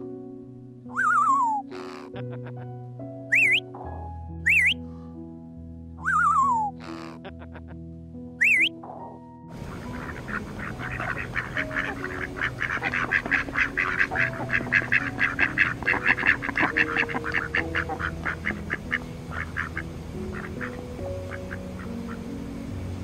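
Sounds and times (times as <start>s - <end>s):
ducks quacking: 1.0s - 2.7s, 3.3s - 3.9s, 4.5s - 4.8s, 6.0s - 7.8s, 8.4s - 22.3s.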